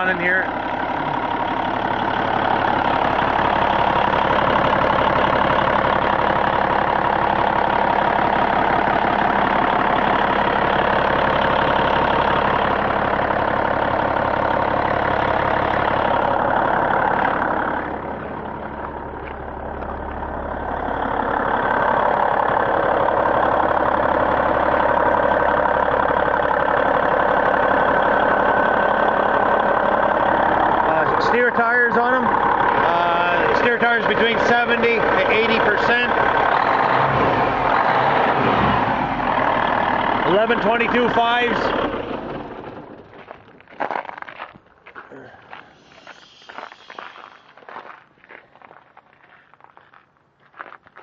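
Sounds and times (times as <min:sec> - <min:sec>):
diesel truck engine idling: 0:00.0 - 0:50.8.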